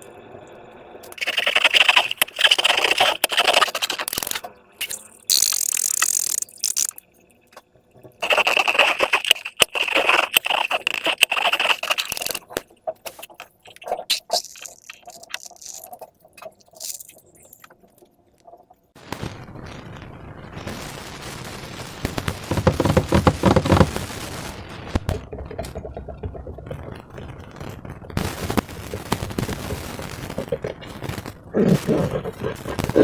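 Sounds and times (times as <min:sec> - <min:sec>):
slime squishing and popping: 0:08.2 - 0:17.8.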